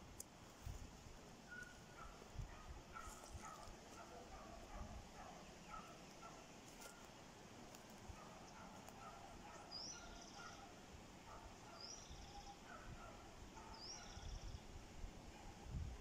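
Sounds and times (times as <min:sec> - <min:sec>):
bird whistle and buzzy trill: 0:09.5 - 0:10.8, 0:11.6 - 0:12.7, 0:13.6 - 0:14.7.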